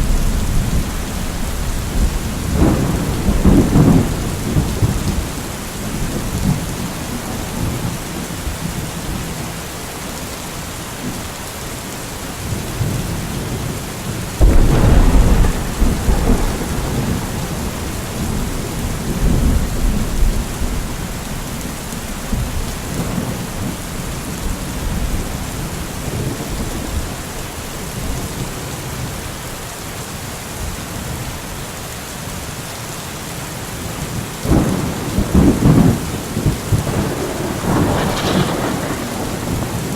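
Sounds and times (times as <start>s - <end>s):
loud thunderclap: 0.0s - 7.9s, 14.4s - 27.0s, 34.4s - 39.9s
thunder rumbling: 0.0s - 9.2s, 14.4s - 27.2s, 34.1s - 39.9s
steady rain: 0.0s - 39.9s.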